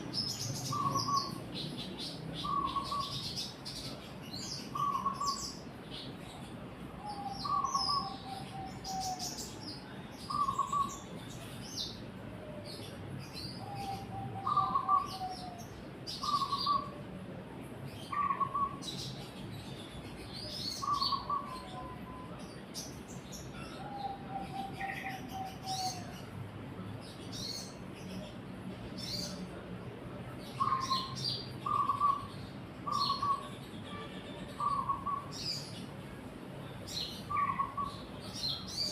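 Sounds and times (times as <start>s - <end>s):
low bird calls: 0.0s - 1.8s, 2.4s - 3.4s, 4.6s - 5.6s, 7.0s - 9.5s, 10.3s - 11.0s, 13.6s - 17.0s, 18.1s - 18.8s, 20.8s - 22.4s, 30.6s - 33.5s, 37.3s - 38.9s.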